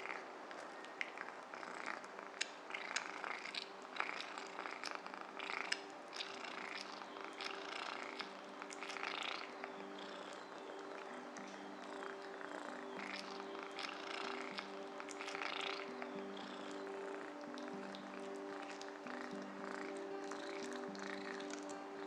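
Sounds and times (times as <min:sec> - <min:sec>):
cat chewing meat: 0:00.0 - 0:09.4, 0:13.8 - 0:15.8
faint low hum of held tones: 0:00.0 - 0:22.0.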